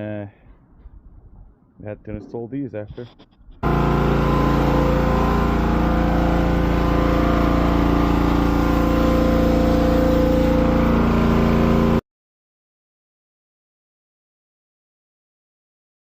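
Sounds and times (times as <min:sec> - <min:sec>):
engine running steadily: 0:03.0 - 0:12.0.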